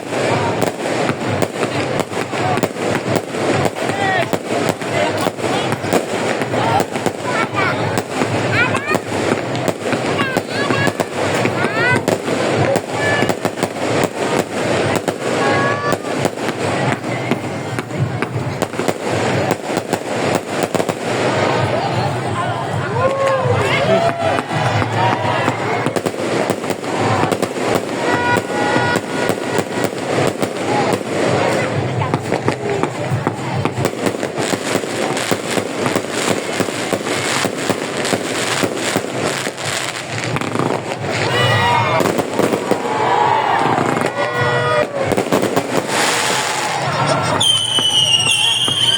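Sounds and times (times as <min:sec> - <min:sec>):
fireworks bangs and crackles: 0:00.0 - 0:48.9
background din: 0:46.4 - 0:48.9.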